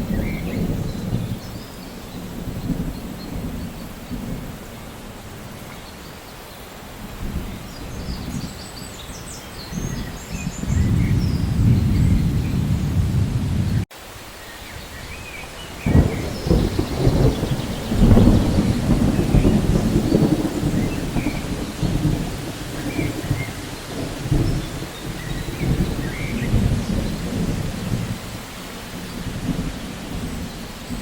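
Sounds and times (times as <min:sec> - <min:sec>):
steady rain: 0:00.0 - 0:31.0
thunder rolling: 0:09.7 - 0:13.9, 0:15.7 - 0:31.0.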